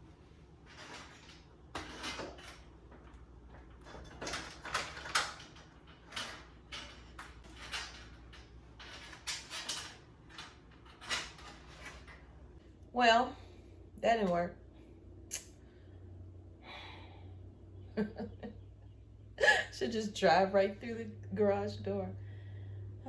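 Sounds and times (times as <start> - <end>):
knocks and scrapes on garage door: 0.0 - 12.6.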